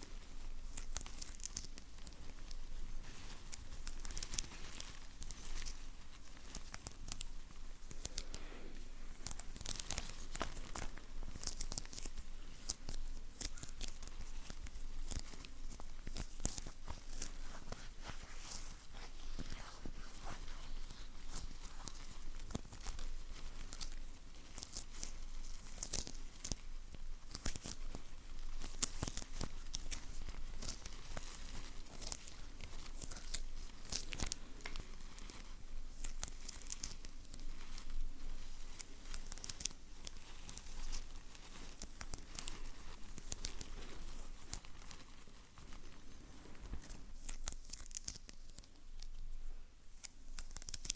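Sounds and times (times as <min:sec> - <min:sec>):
crinkling: 0:00.0 - 0:50.9
sticky material peeling apart: 0:27.2 - 0:45.8.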